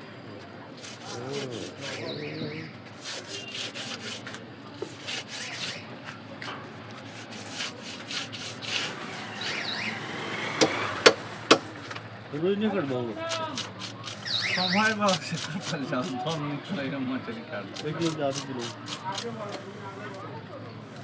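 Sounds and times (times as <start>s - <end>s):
knife scraping fish scales: 0.8s - 2.2s, 2.9s - 5.9s, 7.0s - 9.8s, 13.2s - 16.4s, 17.7s - 20.2s
sharp chops on wooden block: 10.6s - 11.7s.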